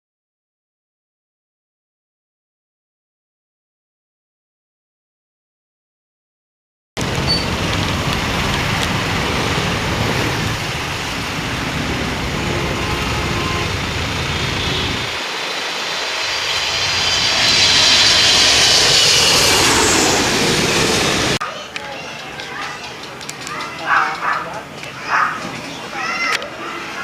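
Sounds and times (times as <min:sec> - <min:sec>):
jet engine rumble and whine: 0:07.0 - 0:21.4.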